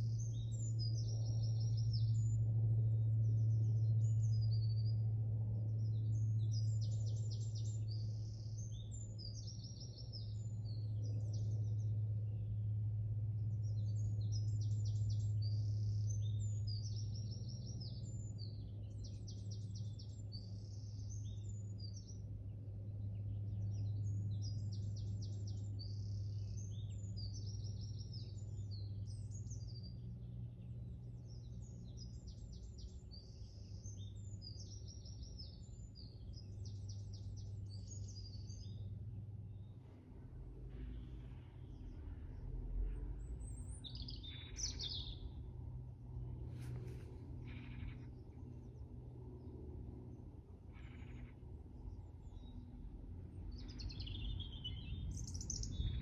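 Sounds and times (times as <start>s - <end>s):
low hum: 0.0s - 56.0s.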